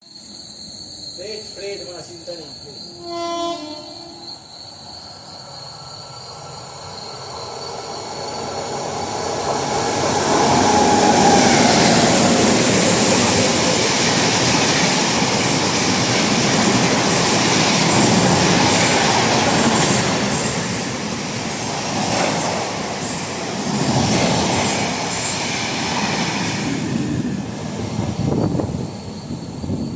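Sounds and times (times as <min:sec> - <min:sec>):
train wheels clattering on rails: 0:06.3 - 0:29.9.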